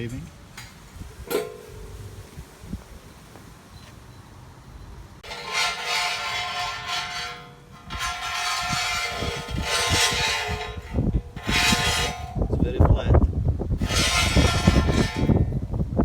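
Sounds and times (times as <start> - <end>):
power tool working metal: 5.2 - 12.4, 13.8 - 15.5.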